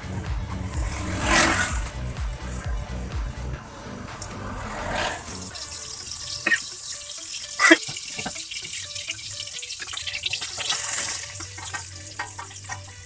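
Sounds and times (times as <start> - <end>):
water running and splashing: 3.7 - 13.0.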